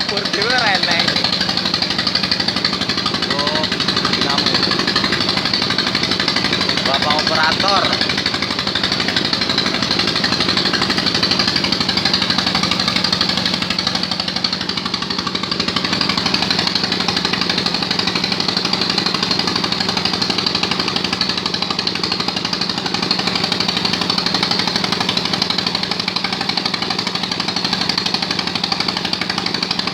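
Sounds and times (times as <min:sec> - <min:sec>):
machine hum: 0:00.0 - 0:13.8
drilling machine pounding: 0:00.0 - 0:29.9.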